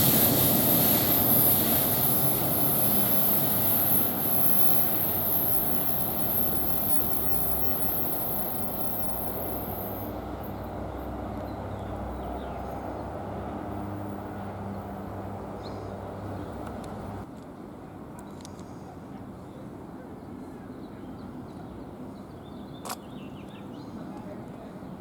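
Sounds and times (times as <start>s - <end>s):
high whine: 0.0s - 11.5s
train rumbling by: 0.0s - 18.1s.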